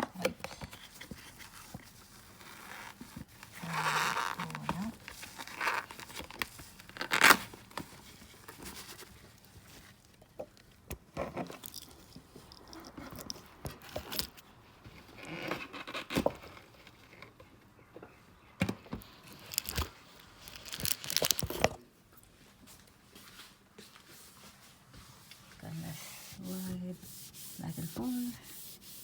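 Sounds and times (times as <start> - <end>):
wipes pack crinkling and tearing: 1.3 - 10.2, 19.3 - 21.6.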